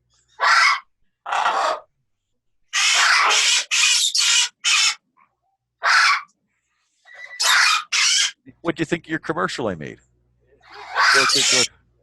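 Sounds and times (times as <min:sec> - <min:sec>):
parrot squawking: 0:00.4 - 0:01.9, 0:02.7 - 0:05.1, 0:05.8 - 0:06.3, 0:07.1 - 0:08.4, 0:10.6 - 0:11.7.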